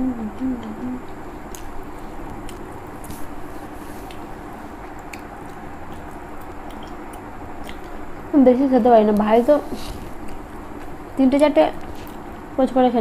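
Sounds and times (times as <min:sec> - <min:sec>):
person humming: 0:00.0 - 0:01.1
chewing and mouth smacks: 0:01.5 - 0:03.3, 0:04.0 - 0:08.3.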